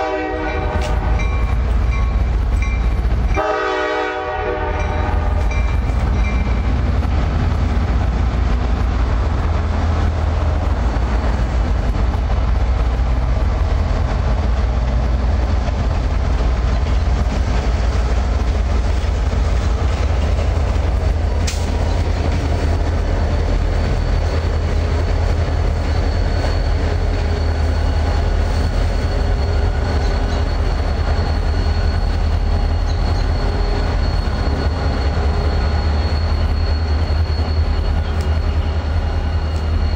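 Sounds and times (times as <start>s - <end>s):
train wheels rumbling on rail: 0.0s - 39.9s
high wheel squeal: 19.4s - 39.9s.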